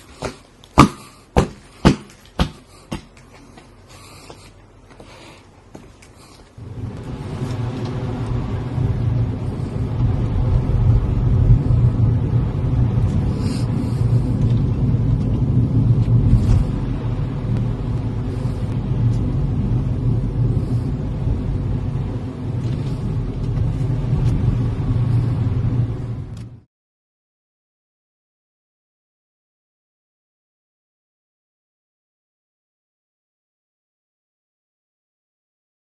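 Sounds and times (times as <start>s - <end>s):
car engine rumbling: 5.6s - 26.6s.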